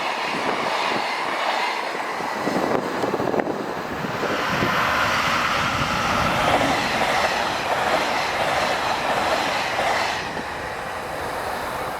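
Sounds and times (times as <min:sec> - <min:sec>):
freight train rolling past: 0:00.0 - 0:11.9.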